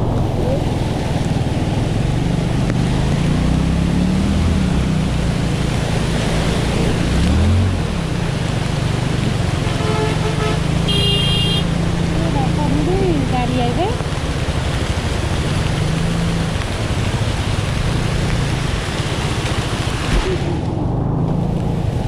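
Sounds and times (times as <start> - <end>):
vehicle horn honking: 9.8 - 11.7.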